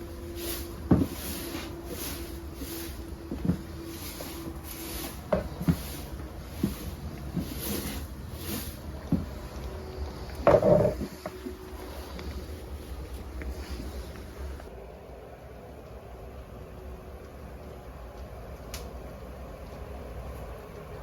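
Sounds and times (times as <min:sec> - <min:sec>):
knocks and thumps: 0:10.4 - 0:11.4.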